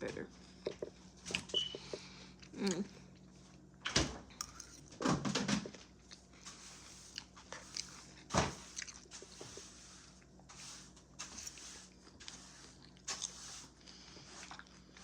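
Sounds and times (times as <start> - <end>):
chewing and biting food: 5.9 - 6.4, 7.1 - 9.4, 12.0 - 15.0.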